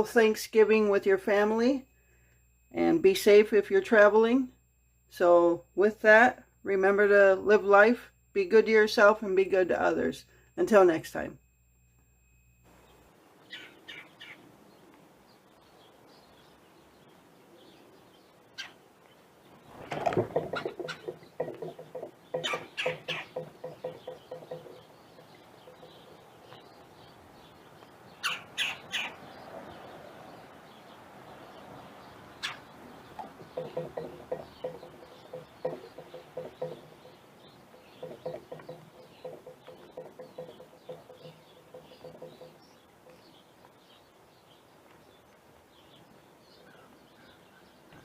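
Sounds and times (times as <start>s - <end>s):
bird calling: 12.8s - 14.9s, 17.5s - 18.9s, 19.5s - 45.3s, 45.9s - 48.0s.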